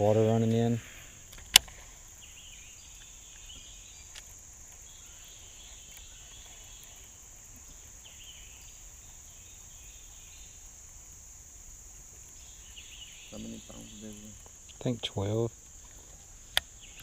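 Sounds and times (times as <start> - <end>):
faint chirping: 0.0 - 17.0
high-pitched insect drone: 0.0 - 17.0
sharp click: 1.3 - 1.8.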